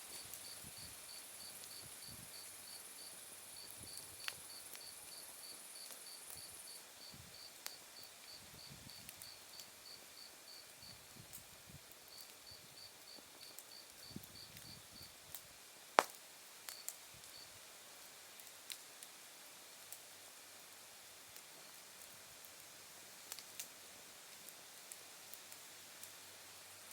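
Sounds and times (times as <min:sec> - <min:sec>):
wood fire crackling: 0:00.0 - 0:26.9
insects chirping: 0:00.1 - 0:11.0
burning wood popping: 0:03.6 - 0:06.7, 0:13.1 - 0:17.4.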